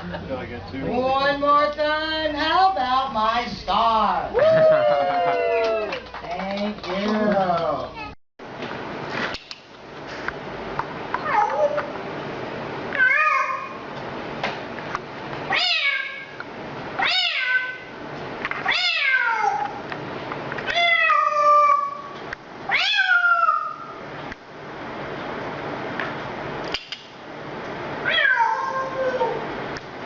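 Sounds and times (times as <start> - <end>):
cat meowing: 13.0 - 13.8, 15.5 - 16.3, 17.0 - 17.9, 18.6 - 19.8, 20.7 - 22.1, 22.7 - 23.8, 28.0 - 29.4.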